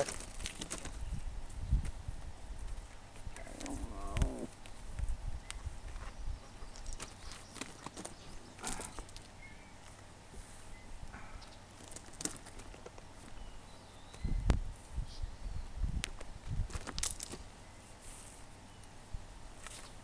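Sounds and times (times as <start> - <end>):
footsteps on ground: 0.0 - 10.7.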